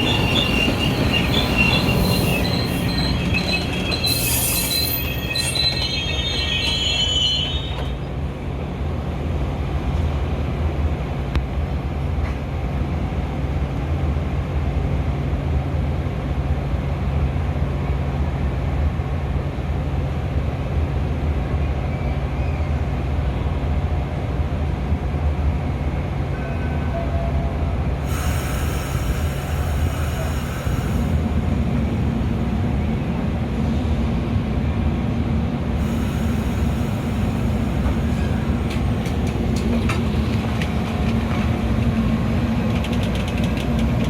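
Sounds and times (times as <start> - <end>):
wheel squeal: 0.0 - 8.0
train rumbling: 0.0 - 44.0.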